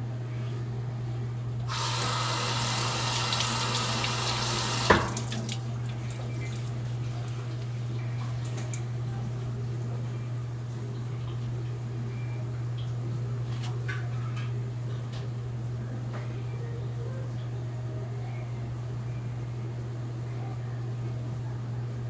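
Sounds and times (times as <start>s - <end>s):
steady low hum: 0.0s - 22.0s
water tap running: 1.7s - 7.3s.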